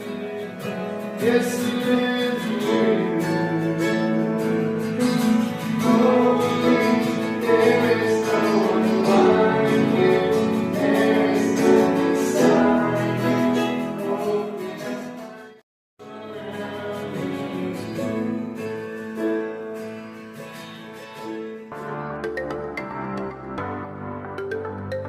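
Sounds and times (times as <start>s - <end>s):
strummed acoustic guitar: 0.0s - 22.1s
person singing worship song: 1.2s - 15.4s, 16.0s - 18.8s.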